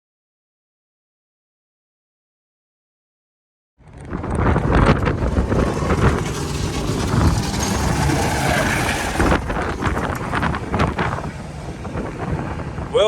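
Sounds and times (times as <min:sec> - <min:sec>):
truck rumble: 0:03.8 - 0:13.0
wind buffeting microphone: 0:03.8 - 0:13.0.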